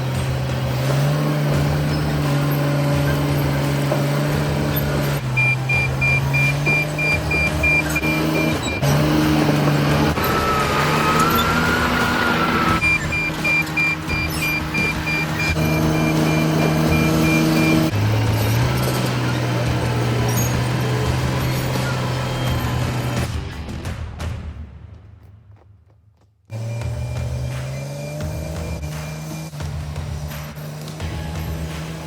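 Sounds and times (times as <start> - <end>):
bulldozer diesel engine running: 0.0 - 23.2, 26.5 - 32.0
reverse alarm beeping: 5.2 - 8.8, 12.6 - 17.9.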